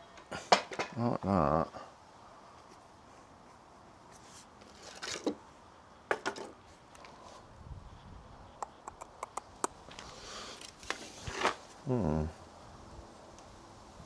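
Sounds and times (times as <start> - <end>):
small sharp ticks: 8.6 - 11.0.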